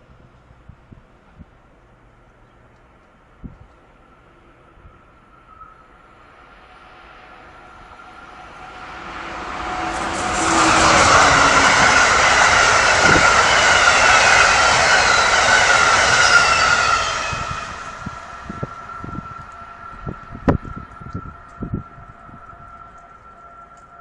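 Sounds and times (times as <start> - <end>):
train passing at speed: 0.0 - 24.0
high tone: 5.6 - 22.7.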